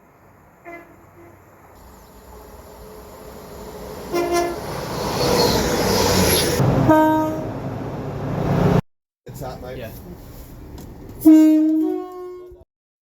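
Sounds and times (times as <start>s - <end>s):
train rumble: 0.0s - 12.6s
train horn blasts: 0.6s - 1.5s, 4.1s - 4.8s, 6.7s - 7.7s, 11.2s - 12.6s.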